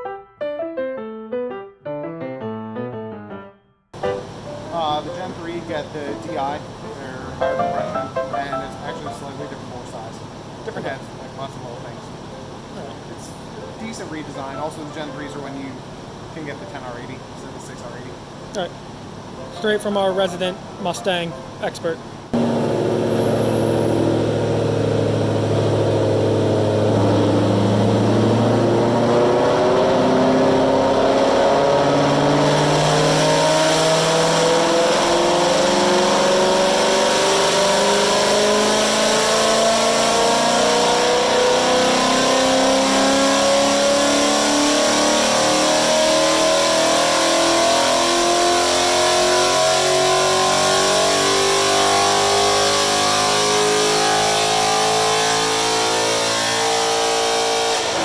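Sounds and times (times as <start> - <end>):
car engine revving on dyno: 4.0 - 19.0, 22.3 - 58.0.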